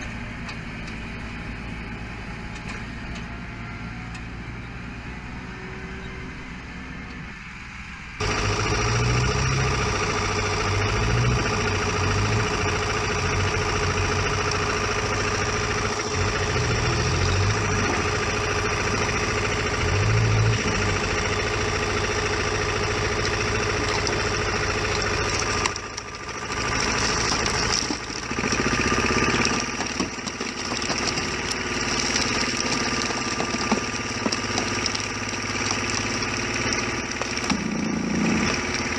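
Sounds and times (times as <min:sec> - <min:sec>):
machine engine whining: 0:08.2 - 0:38.9.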